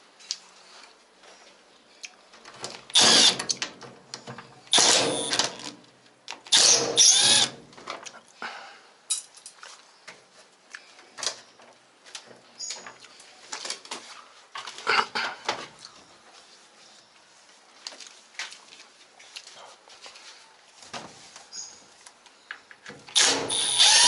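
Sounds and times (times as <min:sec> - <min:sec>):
power drill-driver whirring: 0:03.0 - 0:03.5, 0:04.8 - 0:05.6, 0:06.5 - 0:07.5, 0:23.2 - 0:24.0.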